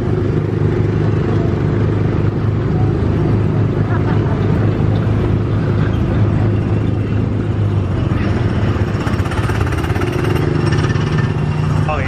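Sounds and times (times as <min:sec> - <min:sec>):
small gasoline engine running: 0:08.4 - 0:12.0.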